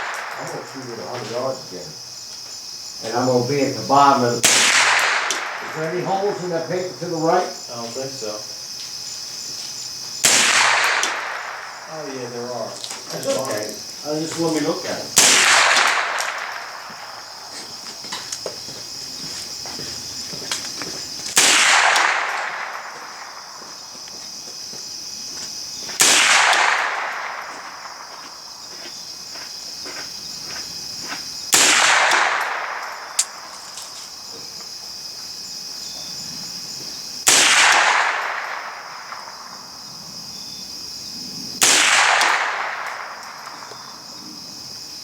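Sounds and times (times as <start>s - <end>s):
rifle shots with echo: 0.0s - 1.0s, 4.4s - 6.0s, 10.2s - 11.9s, 15.2s - 17.5s, 21.4s - 23.6s, 26.0s - 28.2s, 31.5s - 33.5s, 37.3s - 39.7s, 41.6s - 43.9s
insects droning: 0.0s - 45.0s.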